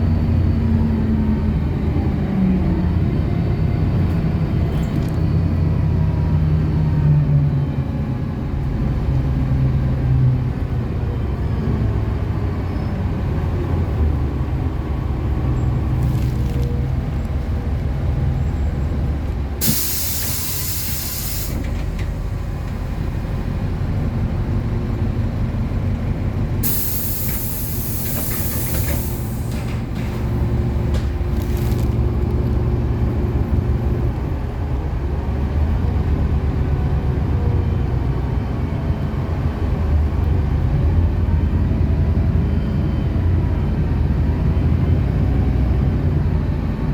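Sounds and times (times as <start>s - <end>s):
bus engine rumbling: 0.0s - 46.9s
compressed air hissing: 19.6s - 21.8s, 26.6s - 30.0s.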